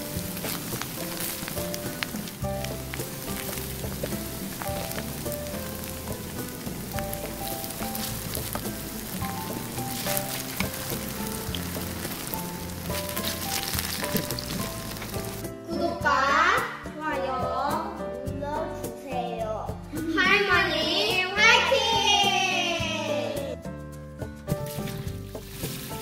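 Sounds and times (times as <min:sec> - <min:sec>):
food sizzling in frying oil: 0:00.0 - 0:15.5, 0:24.5 - 0:26.0
background music: 0:00.0 - 0:26.0.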